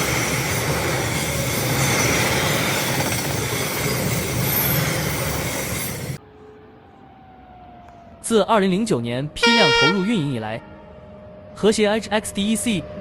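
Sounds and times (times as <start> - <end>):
train wheels rumbling on rails: 0.0 - 6.2
faint high tones: 9.4 - 10.9.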